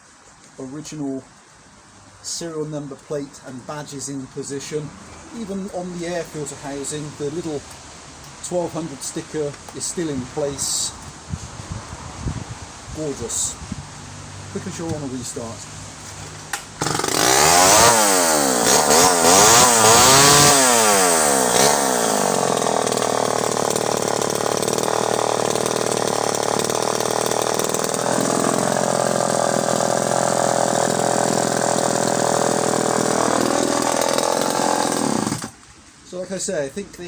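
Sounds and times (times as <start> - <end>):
chainsaw revving and idling: 16.8 - 35.6.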